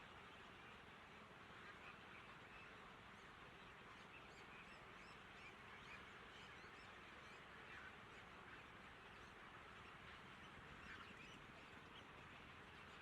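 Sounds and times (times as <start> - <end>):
birds chirping: 3.6 - 13.0.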